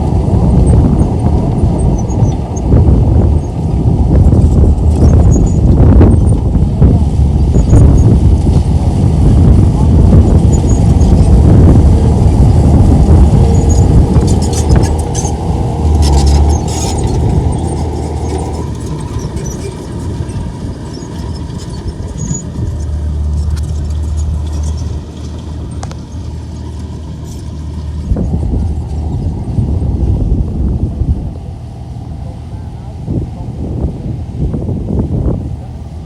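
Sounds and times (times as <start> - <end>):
bulldozer diesel engine droning: 0.0 - 36.0
metallic clicks and squeaks: 16.0 - 27.6.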